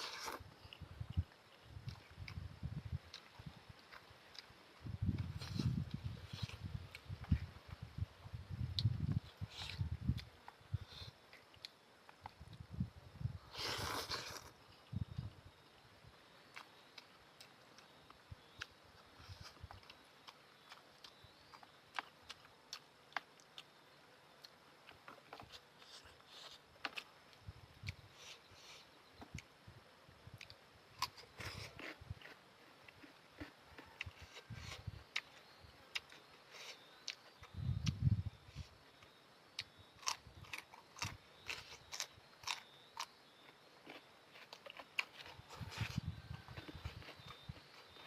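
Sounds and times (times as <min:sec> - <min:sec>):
chewing and mouth sounds: 0:16.5 - 0:23.8, 0:39.0 - 0:48.0.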